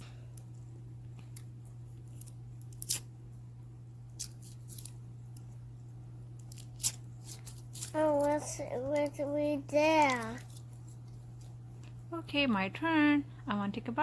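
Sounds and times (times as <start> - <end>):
packaging clicks and crinkles: 6.4 - 12.0.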